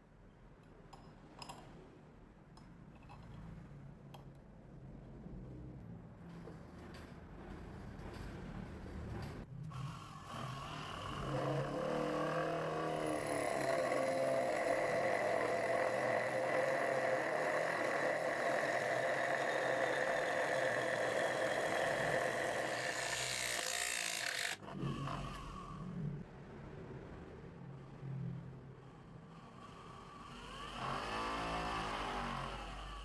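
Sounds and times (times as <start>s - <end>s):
drum sander running: 13.2s - 24.6s.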